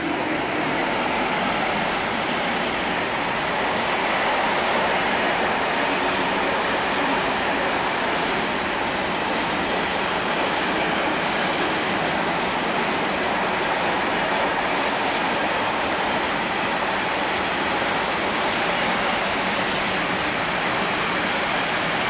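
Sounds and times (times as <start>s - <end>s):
freight train wheels on rails: 0.0s - 22.0s.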